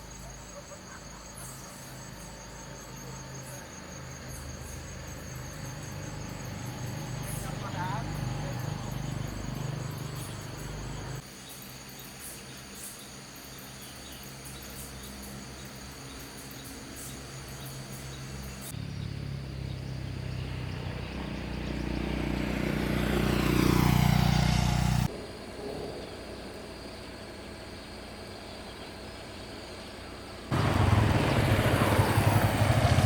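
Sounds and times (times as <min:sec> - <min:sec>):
insects chirping: 0:00.0 - 0:33.0
vehicle engine running: 0:01.7 - 0:11.2, 0:17.8 - 0:33.0.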